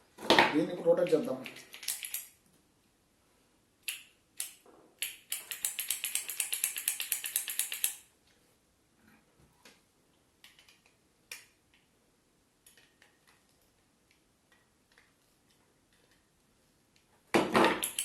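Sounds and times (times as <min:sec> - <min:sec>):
small parts clicking and tapping: 0:01.3 - 0:02.4, 0:03.8 - 0:08.1, 0:10.1 - 0:11.9, 0:12.6 - 0:16.3, 0:16.9 - 0:18.0.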